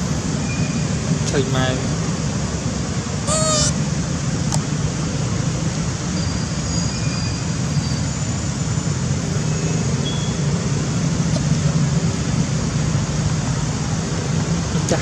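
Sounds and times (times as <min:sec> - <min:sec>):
low rumbling background noise: 0:00.0 - 0:15.0
faint short high tones: 0:03.3 - 0:03.8.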